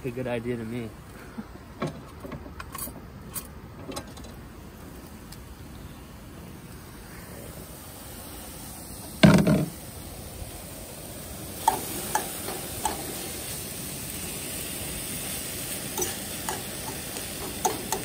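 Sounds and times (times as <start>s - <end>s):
faint sizzle: 4.5s - 18.0s
utensil tapping pan: 11.6s - 13.1s, 16.0s - 18.0s
food clattering into pan: 16.0s - 18.0s.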